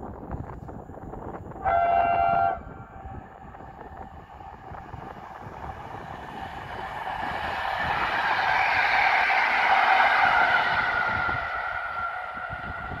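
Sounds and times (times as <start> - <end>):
electric train running: 0.1 - 13.0
train horn: 1.6 - 3.3.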